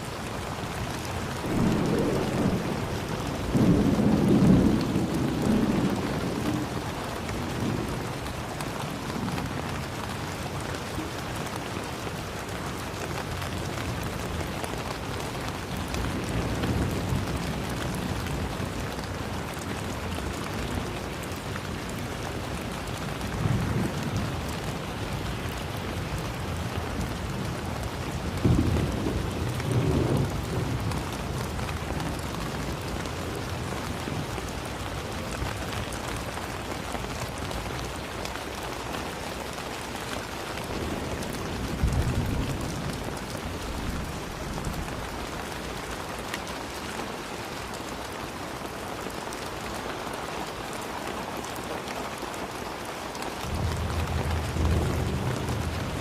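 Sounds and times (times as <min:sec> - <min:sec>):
heavy rain falling: 0:00.0 - 0:56.0
thunder rumbling: 0:01.4 - 0:06.9, 0:53.4 - 0:56.0.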